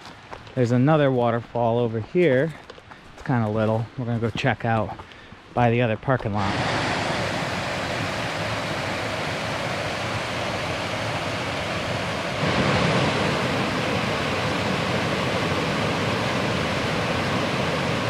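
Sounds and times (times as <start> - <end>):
waterfall rushing and splashing: 6.4 - 18.0.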